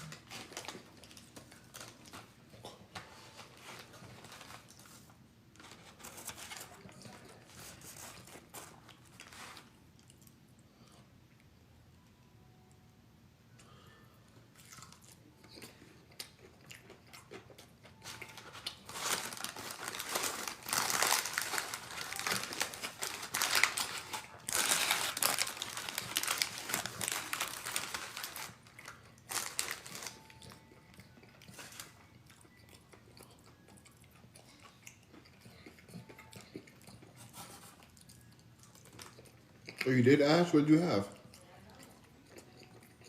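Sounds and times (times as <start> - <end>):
food packaging crinkling: 0.0 - 2.4, 3.0 - 10.1, 17.3 - 32.6, 37.1 - 41.0
crunchy biting and chewing: 14.5 - 39.9, 41.1 - 43.0.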